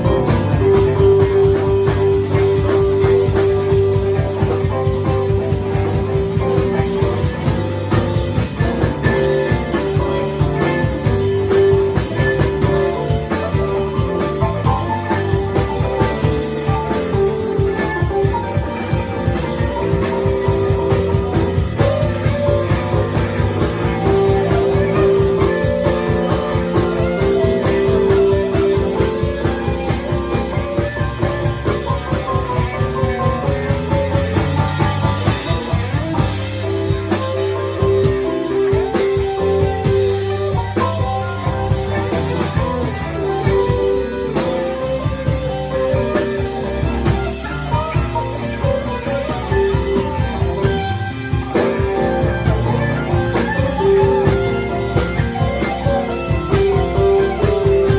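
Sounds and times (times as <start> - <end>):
electric guitar melody: 0.0 - 57.9
steady drum beat: 0.0 - 57.9.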